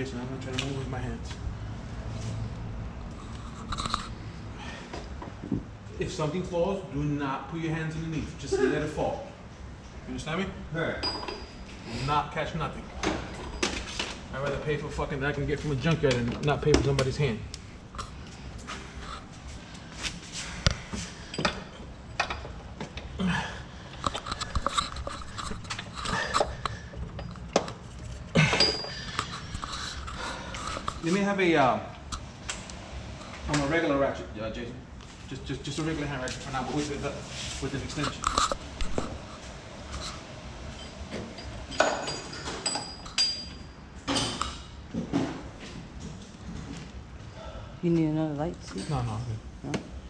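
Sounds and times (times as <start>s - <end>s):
metal tools clinking: 11.0s - 11.6s, 24.0s - 30.3s, 40.7s - 44.7s
metallic knocks and clinks: 11.0s - 11.6s, 28.5s - 29.3s, 40.8s - 44.7s.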